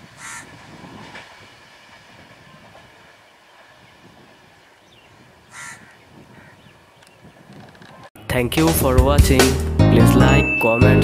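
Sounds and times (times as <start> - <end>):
rail car rumble and wheel clatter: 0.0 - 5.4.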